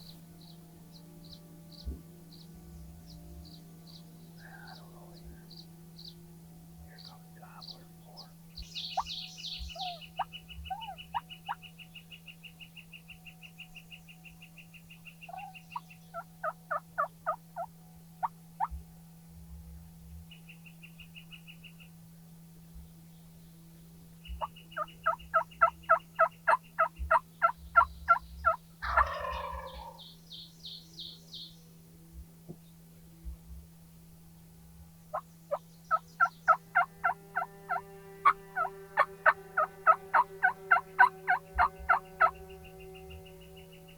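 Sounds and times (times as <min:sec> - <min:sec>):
songbird trills: 0:00.0 - 0:18.8, 0:20.1 - 0:31.8, 0:35.1 - 0:43.9
turkey gobble: 0:09.7 - 0:11.6, 0:15.3 - 0:18.7, 0:24.4 - 0:30.0, 0:35.9 - 0:42.4
turkey yelps: 0:09.7 - 0:11.6, 0:16.2 - 0:18.7, 0:24.4 - 0:30.0, 0:35.9 - 0:42.4.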